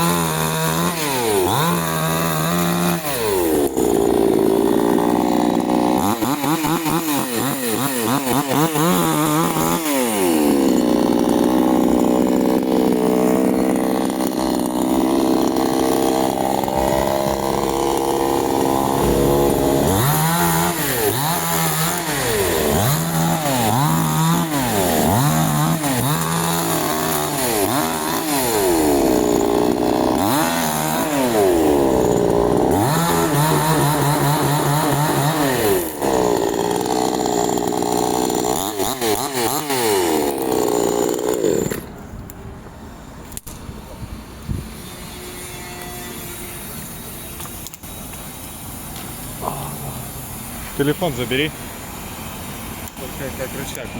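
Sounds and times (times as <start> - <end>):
chainsaw cutting wood: 0.0 - 42.0.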